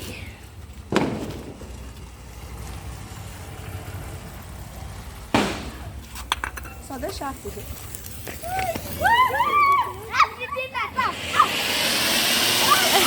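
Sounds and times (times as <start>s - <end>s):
loud thumps: 0.9s - 1.8s, 5.3s - 5.9s.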